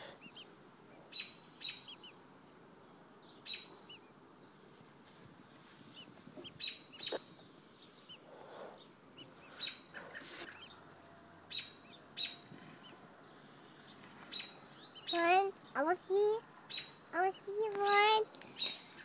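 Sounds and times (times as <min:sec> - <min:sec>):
faint bird chirps: 0:00.0 - 0:02.2, 0:02.8 - 0:04.7, 0:05.8 - 0:10.8, 0:11.5 - 0:15.9
sharp bird calls: 0:00.0 - 0:04.2, 0:05.5 - 0:10.8, 0:11.4 - 0:19.0.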